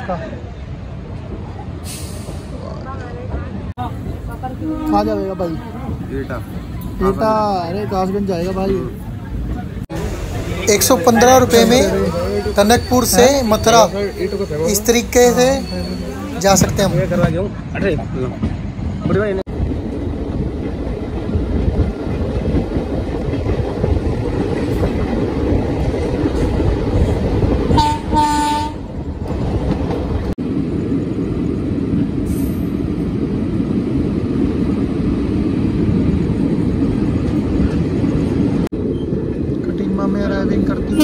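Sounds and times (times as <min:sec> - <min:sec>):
train wheels rumbling on track: 0:00.0 - 0:41.0
train horn: 0:27.7 - 0:28.9.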